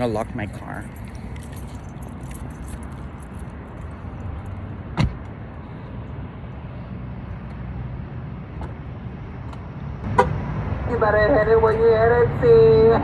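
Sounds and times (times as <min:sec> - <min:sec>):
low outdoor rumble: 0:00.0 - 0:13.0
car door shutting: 0:04.9 - 0:05.3.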